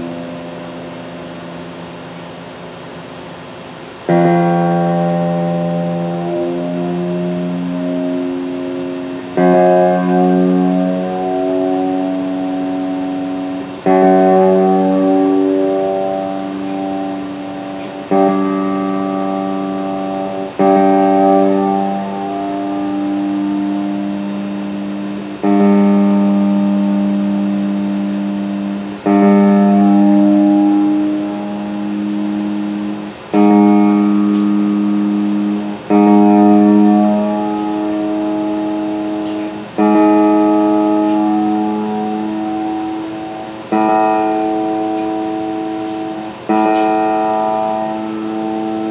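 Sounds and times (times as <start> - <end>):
plucked string chords ringing: 0.0 - 48.9.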